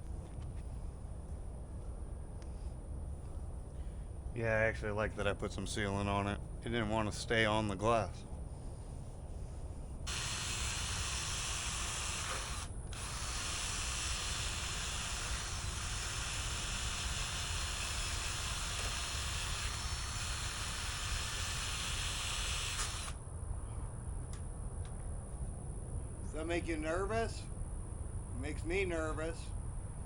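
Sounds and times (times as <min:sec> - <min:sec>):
paint spraying hiss: 0:10.1 - 0:23.2.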